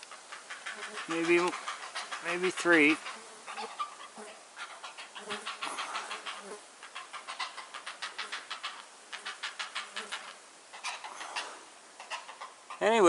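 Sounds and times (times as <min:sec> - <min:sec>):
herons giving rapid clacking calls: 0:00.0 - 0:13.0.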